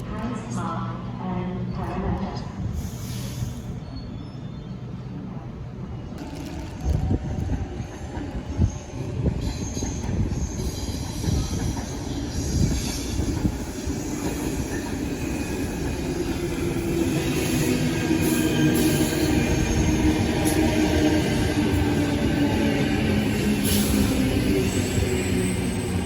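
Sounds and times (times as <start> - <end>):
train wheels rumbling and knocking: 6.0 - 26.0.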